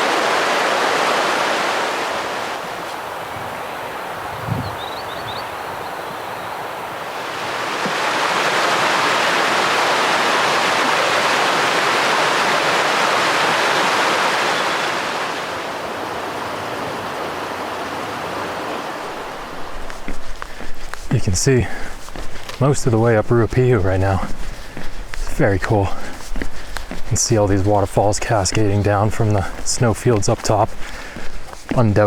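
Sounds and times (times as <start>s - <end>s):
rushing mountain stream: 0.0s - 32.0s
faint bird chirps: 4.6s - 6.6s.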